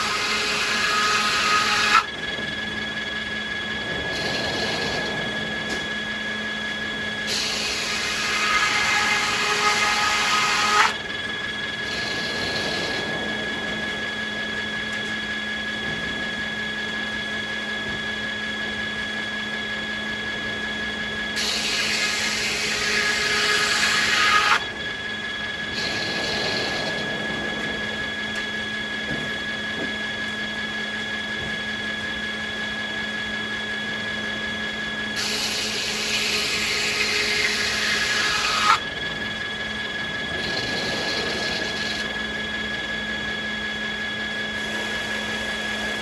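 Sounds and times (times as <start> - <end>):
saw blade whining through wood: 0.0 - 46.0
sawmill saw running: 0.0 - 46.0.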